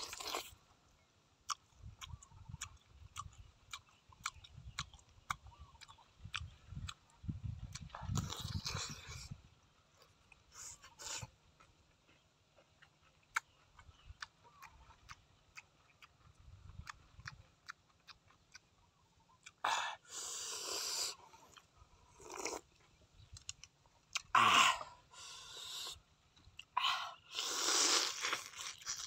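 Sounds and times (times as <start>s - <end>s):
chewing with wet mouth clicks: 1.4s - 19.6s, 21.3s - 24.3s, 28.2s - 29.0s.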